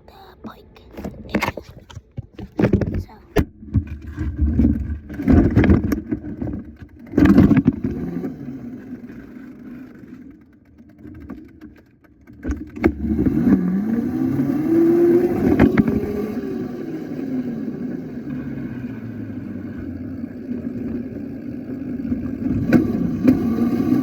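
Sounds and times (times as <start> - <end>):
motorbike engine revving: 7.2 - 9.6, 12.8 - 24.0.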